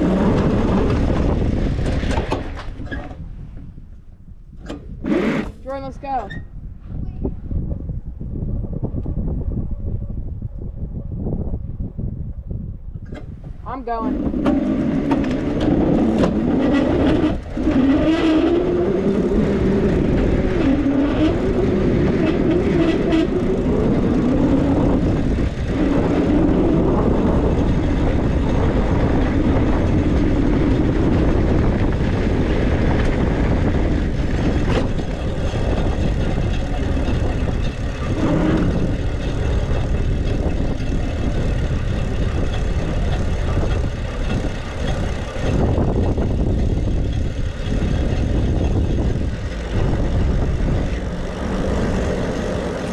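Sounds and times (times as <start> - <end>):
wind rush: 0.0 - 52.9
wavering motor hum: 13.0 - 52.9
rolling noise: 13.2 - 52.9.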